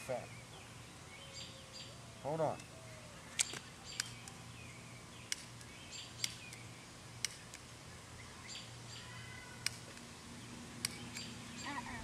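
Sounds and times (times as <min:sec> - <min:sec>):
birds chirping: 0:00.0 - 0:12.0
sharp clicks: 0:03.3 - 0:04.4, 0:05.3 - 0:07.7.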